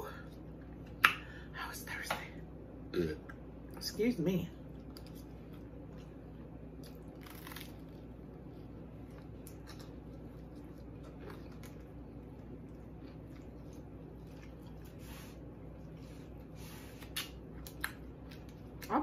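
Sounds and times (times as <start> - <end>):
steady low hum: 0.0 - 19.0
person chewing food: 4.7 - 18.9.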